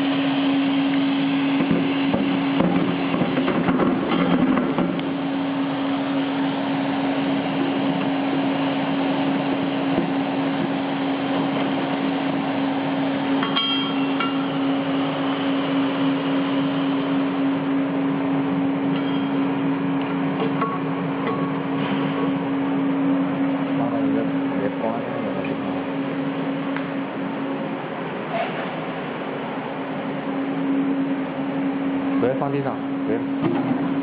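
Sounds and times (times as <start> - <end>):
constant machine hum: 0.0 - 34.0
ringing clink: 13.4 - 14.6, 19.0 - 19.4.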